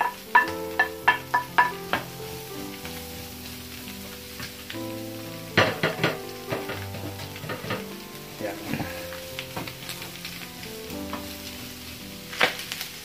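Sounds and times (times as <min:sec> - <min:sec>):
wooden spatula tapping a pan: 0:00.0 - 0:02.2, 0:05.6 - 0:08.0
clicks and crackles: 0:00.0 - 0:13.0
pork sizzling in fat: 0:00.0 - 0:13.0.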